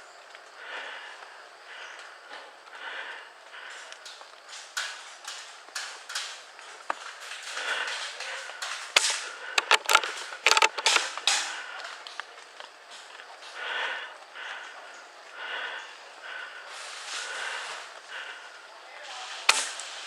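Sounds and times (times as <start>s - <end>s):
irregular clicks knocks and creaks: 3.9s - 13.2s.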